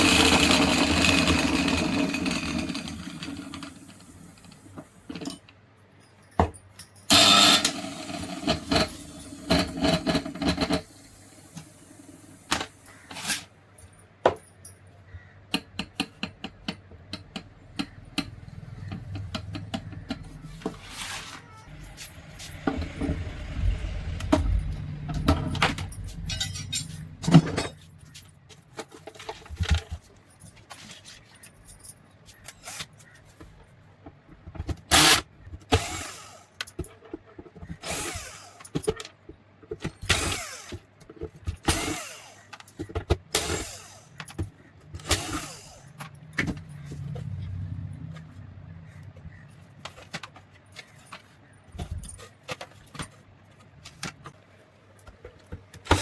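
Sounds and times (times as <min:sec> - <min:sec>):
metal parts clinking and scraping: 0:00.0 - 0:11.7, 0:12.5 - 0:14.8, 0:17.8 - 0:33.4, 0:49.0 - 0:54.3.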